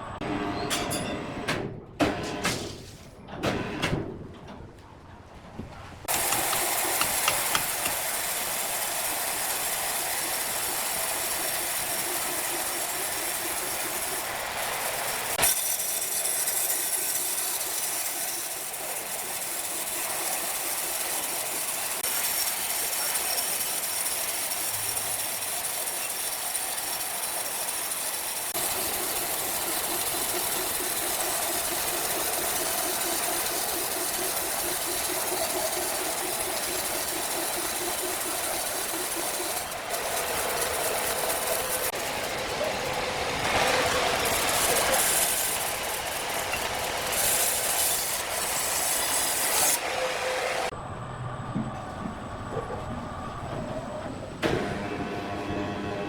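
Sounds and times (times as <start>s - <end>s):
sawmill machinery hissing: 6.1s - 50.9s, 53.1s - 56.0s
low machine hum: 49.9s - 56.0s.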